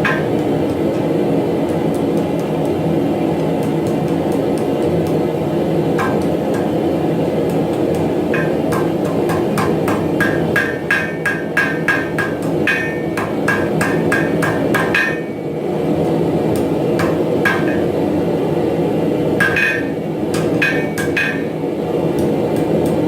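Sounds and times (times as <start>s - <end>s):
hammer striking metal on anvil: 0.0s - 1.1s, 6.0s - 15.6s, 16.5s - 18.0s, 19.4s - 21.5s.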